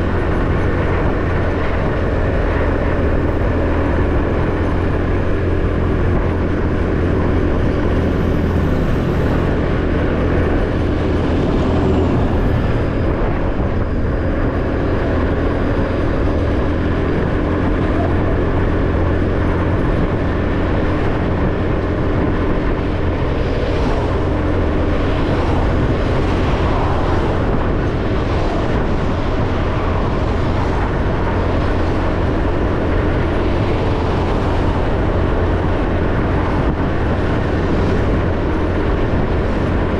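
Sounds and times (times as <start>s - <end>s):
road and riding noise: 0.0s - 39.9s.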